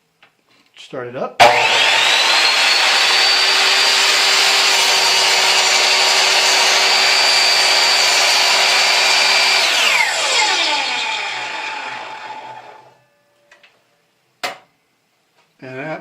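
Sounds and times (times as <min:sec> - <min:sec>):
miter saw whining: 0:01.4 - 0:13.0.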